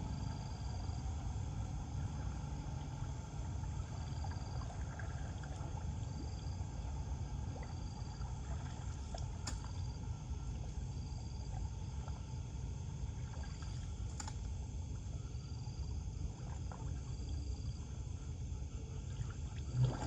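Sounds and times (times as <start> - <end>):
water gurgling: 0.0 - 10.0, 19.1 - 20.0
floodwater rushing into drain: 19.6 - 20.0.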